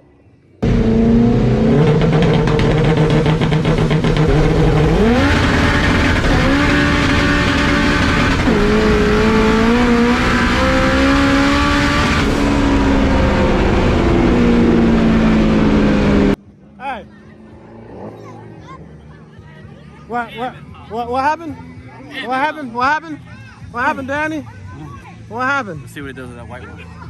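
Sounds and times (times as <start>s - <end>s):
drag car engine at full throttle: 0.6s - 20.2s.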